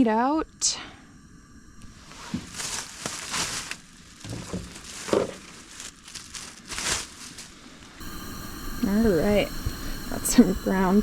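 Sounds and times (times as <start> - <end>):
food packaging crinkling: 2.2 - 8.0.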